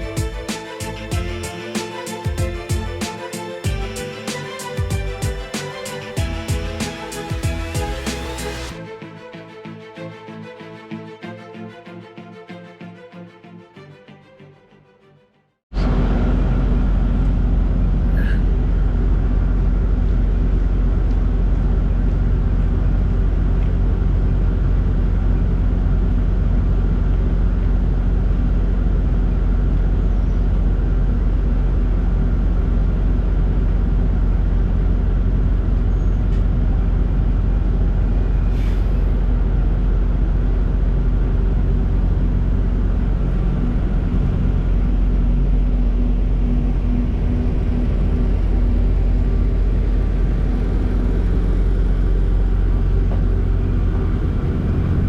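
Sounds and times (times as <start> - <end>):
diesel truck engine humming: 34.6 - 55.0.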